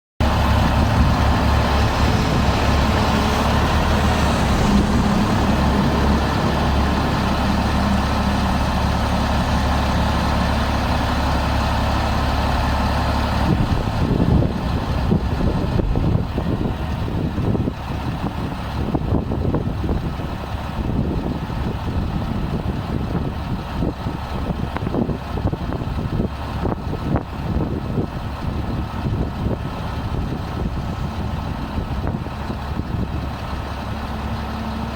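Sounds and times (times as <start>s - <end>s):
truck diesel engine running: 0.2s - 34.9s.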